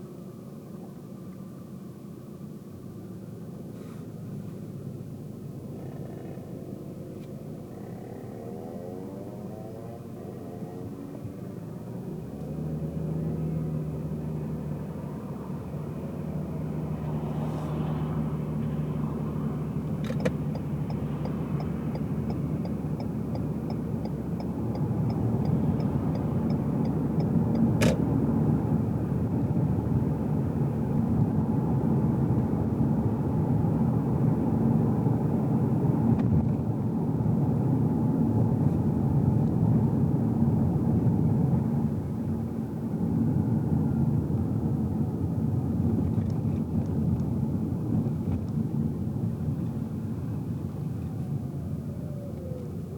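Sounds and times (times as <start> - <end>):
car engine and road noise: 0.0 - 52.9
turn signal ticking: 19.8 - 28.1
sharp click: 20.0 - 21.4.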